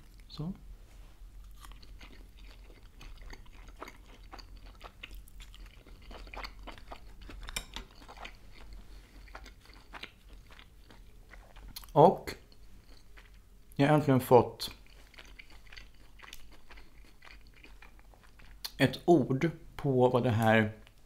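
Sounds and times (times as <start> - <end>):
person chewing food: 0.0 - 0.3, 1.4 - 13.8, 14.6 - 18.8.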